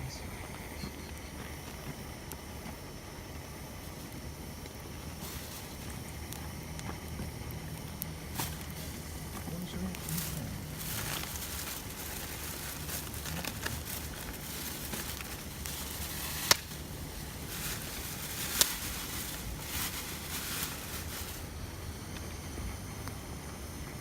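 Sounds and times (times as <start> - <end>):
campfire crackling: 0.0 - 23.9
sharp fire pops: 11.8 - 19.7.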